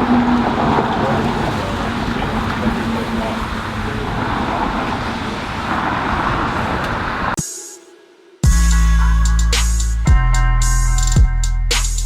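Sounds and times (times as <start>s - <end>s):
car road and tyre noise: 0.0s - 7.4s.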